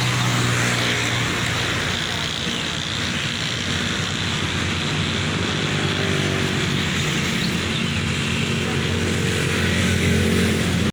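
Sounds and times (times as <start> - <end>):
road noise: 0.0 - 10.9
vehicle engine humming: 0.0 - 10.9.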